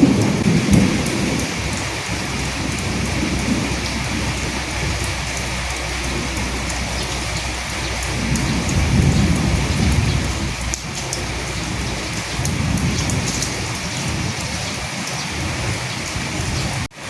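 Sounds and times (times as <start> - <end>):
rolling thunder: 0.0 - 16.9
raindrops ticking: 0.0 - 17.0
steady rain: 0.0 - 17.0.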